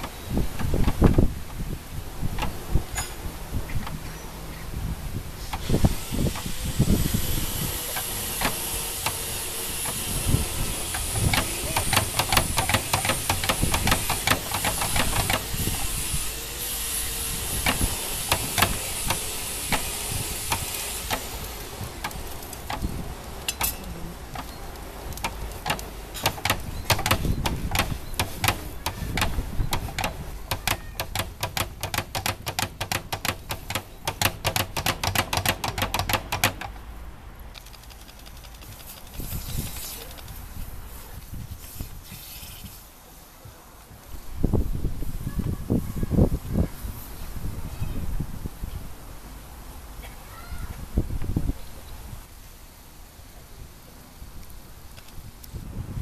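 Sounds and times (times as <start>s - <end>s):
steady high hiss: 0.0s - 56.0s
hammer striking metal on anvil: 23.5s - 24.5s.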